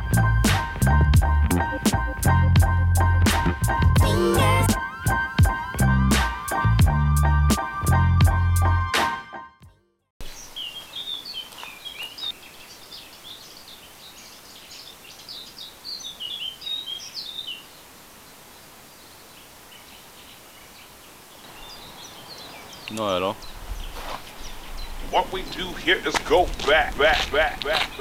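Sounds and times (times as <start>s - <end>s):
outdoor background hiss: 10.2s - 28.0s
small birds chirping: 10.2s - 28.0s.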